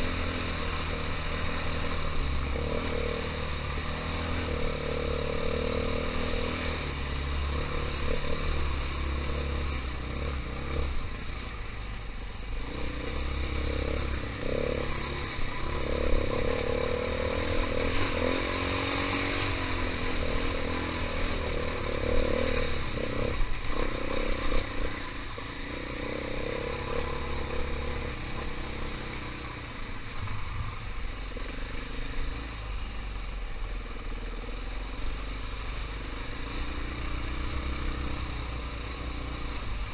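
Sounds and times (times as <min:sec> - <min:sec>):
dirt bike engine revving: 0:00.0 - 0:11.1, 0:12.6 - 0:32.6.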